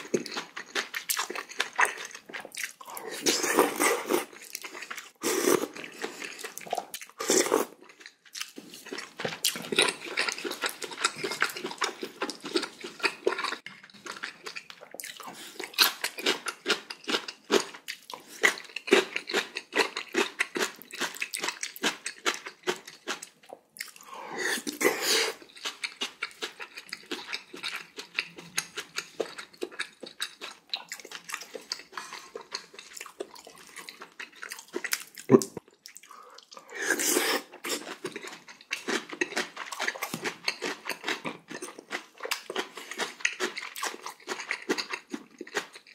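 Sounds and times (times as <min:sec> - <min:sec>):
crunching and wet chewing: 0:00.0 - 0:45.9.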